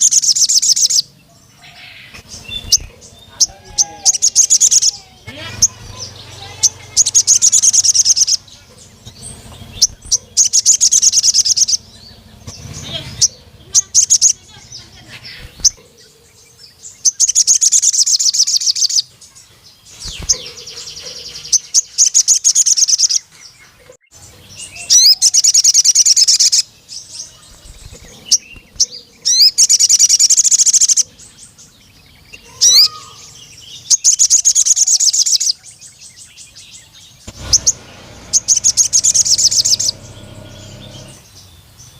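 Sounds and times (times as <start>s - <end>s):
bird trilling: 0.0s - 19.1s, 19.8s - 23.3s, 24.0s - 41.5s
bird chirps: 0.0s - 41.9s.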